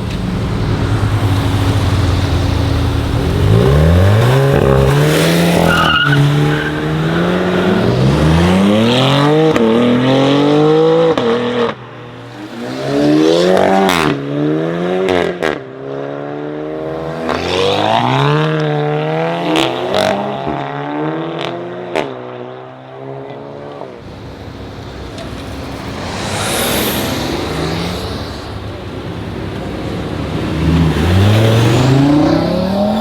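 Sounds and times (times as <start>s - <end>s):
car accelerating through gears: 0.0s - 11.8s, 25.0s - 33.0s.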